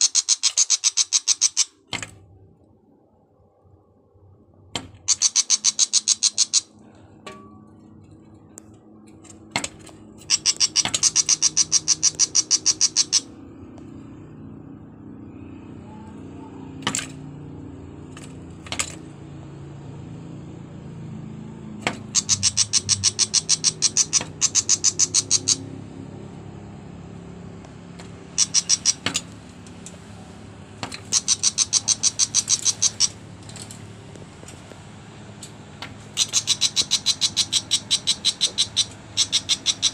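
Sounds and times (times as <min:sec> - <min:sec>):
bird rattling chatter: 0:00.0 - 0:01.8, 0:05.1 - 0:06.7, 0:10.2 - 0:13.3, 0:22.1 - 0:25.6, 0:28.3 - 0:30.0, 0:31.0 - 0:34.7, 0:36.1 - 0:39.9.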